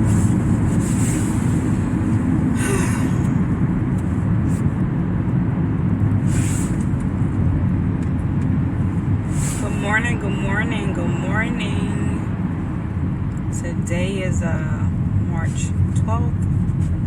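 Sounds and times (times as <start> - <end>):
car driving low rumble: 0.0 - 17.0
brief hissing swells: 6.3 - 6.8, 9.3 - 9.7.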